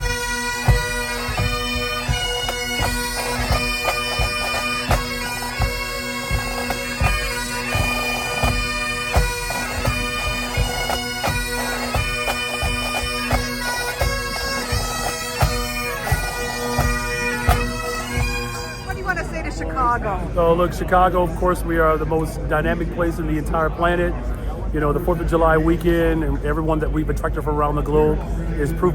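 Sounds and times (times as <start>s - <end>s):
bagpipes playing: 0.0s - 19.8s
drums beating: 0.0s - 19.8s.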